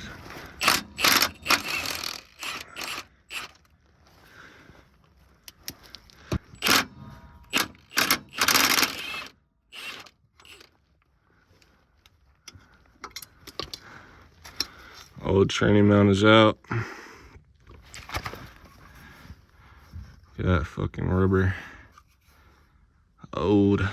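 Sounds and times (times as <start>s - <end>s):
hand tools clanking on metal: 0.0s - 3.6s
metal rasping: 0.0s - 3.6s, 6.5s - 10.7s.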